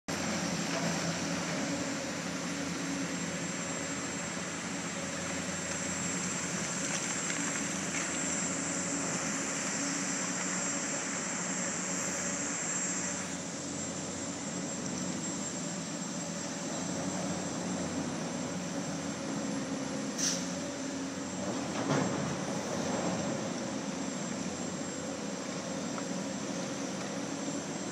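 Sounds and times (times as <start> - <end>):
excavator diesel engines droning: 0.1 - 27.9.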